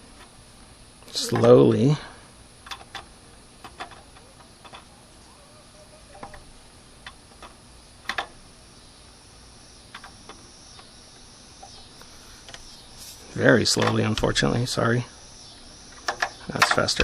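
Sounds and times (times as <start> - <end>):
ratchet clicking: 2.6 - 4.9, 15.9 - 17.0.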